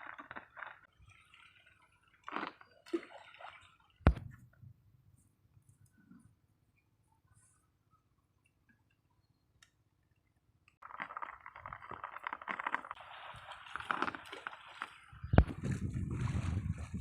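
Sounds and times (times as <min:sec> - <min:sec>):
water splashing and sloshing: 0:00.0 - 0:04.6, 0:10.8 - 0:17.0.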